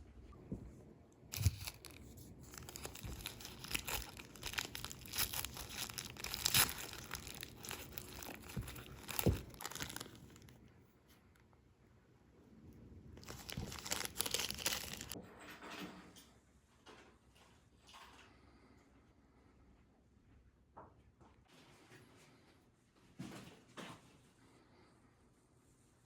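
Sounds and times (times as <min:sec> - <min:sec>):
packaging crinkling: 0:01.3 - 0:10.6, 0:13.2 - 0:15.2.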